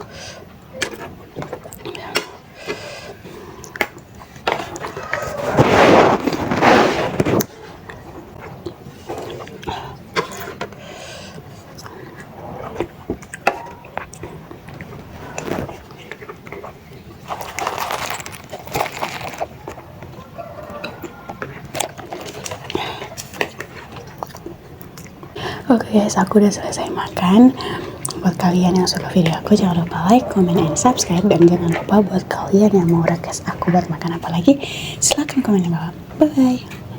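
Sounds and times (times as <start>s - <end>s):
chewing and mouth noises: 7.3s - 25.6s, 26.2s - 34.3s.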